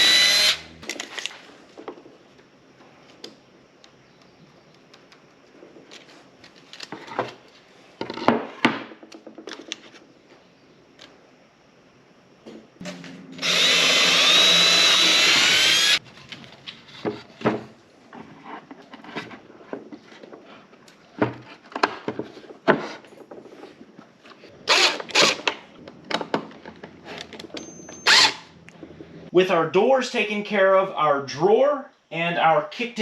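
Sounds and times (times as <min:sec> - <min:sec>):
power drill running: 0:00.0 - 0:00.8, 0:12.9 - 0:16.0, 0:24.7 - 0:25.4, 0:28.0 - 0:28.5.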